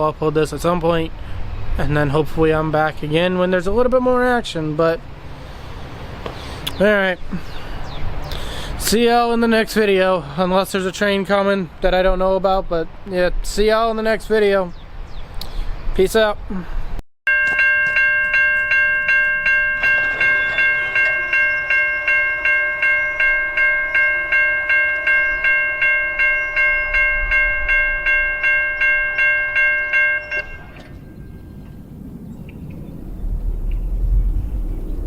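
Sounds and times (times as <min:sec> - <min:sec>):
railroad crossing bell ringing: 0:17.3 - 0:31.9
low rumble: 0:30.3 - 0:35.0.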